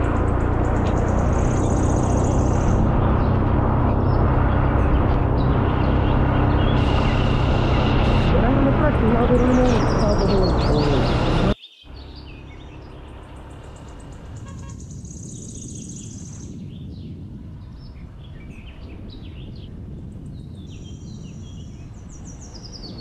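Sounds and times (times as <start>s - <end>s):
steady low rumble: 0.0s - 11.6s
birds chirping and calling: 0.0s - 23.0s
high buzzing trill: 4.3s - 11.6s.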